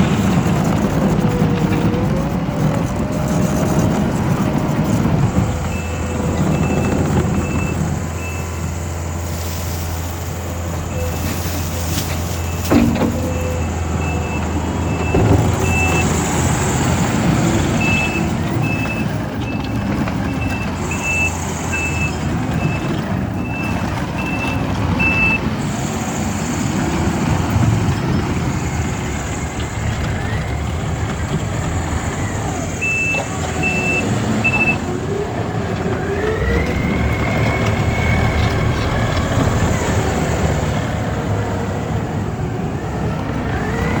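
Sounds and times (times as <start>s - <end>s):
diesel engine running: 0.0s - 44.0s
short knocks: 11.1s - 17.4s
backup alarm beeping: 32.8s - 34.8s.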